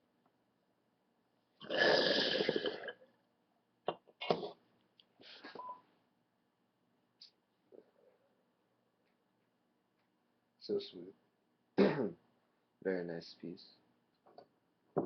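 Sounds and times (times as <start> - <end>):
water bubbling in a bong: 1.6 - 3.0.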